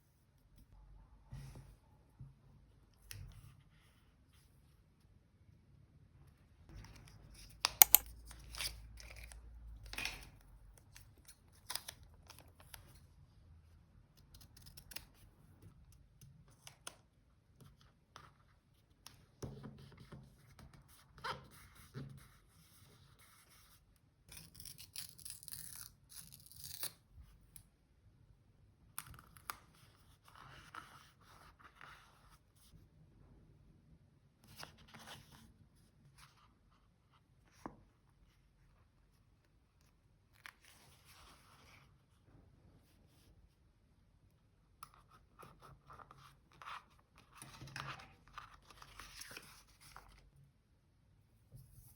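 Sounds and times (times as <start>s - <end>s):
scissors snipping paper: 7.6s - 9.3s.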